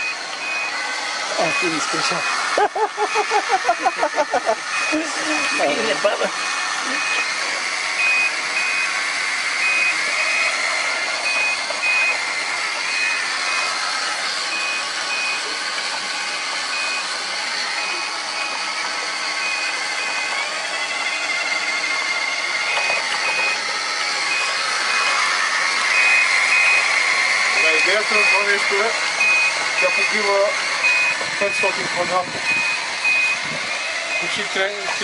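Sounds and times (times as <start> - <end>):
high electronic beeps: 0.0 - 2.4, 6.8 - 7.4, 8.0 - 9.0, 9.6 - 10.5, 11.2 - 12.2, 12.8 - 13.8, 14.5 - 15.5, 16.7 - 18.6, 19.4 - 20.4, 22.6 - 23.6, 24.3 - 25.2, 25.9 - 33.5, 34.1 - 35.0
robot vacuum whirring: 0.0 - 35.0.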